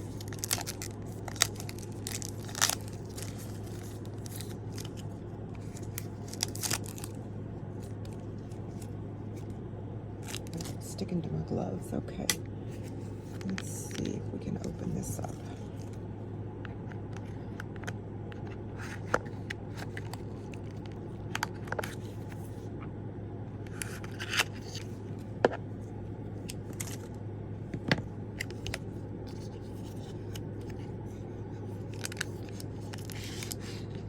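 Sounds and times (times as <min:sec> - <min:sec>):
wrapping crinkling and scraping: 0:00.0 - 0:09.5, 0:10.2 - 0:11.0, 0:26.4 - 0:27.1, 0:28.4 - 0:34.0
steady low hum: 0:00.0 - 0:34.0.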